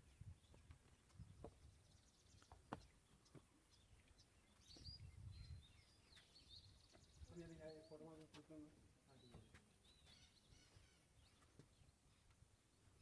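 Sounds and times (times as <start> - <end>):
faint bird chirps: 9.1 - 12.3.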